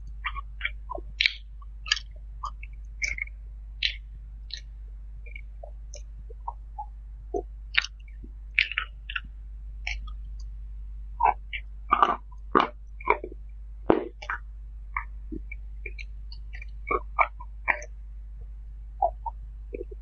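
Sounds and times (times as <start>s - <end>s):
steady low hum: 0.0s - 20.0s
chewing food: 5.3s - 10.5s.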